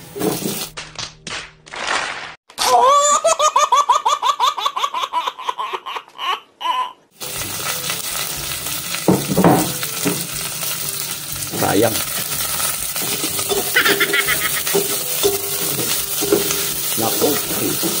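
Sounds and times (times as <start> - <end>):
food frying in a pot: 0.0 - 0.8, 7.2 - 18.0
baby laughing: 2.6 - 7.1, 13.5 - 14.8.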